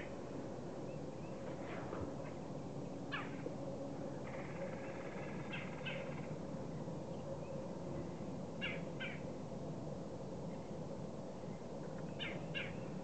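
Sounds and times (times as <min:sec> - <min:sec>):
long drawn-out bird call: 0:04.2 - 0:06.4, 0:07.4 - 0:09.3, 0:12.1 - 0:13.0.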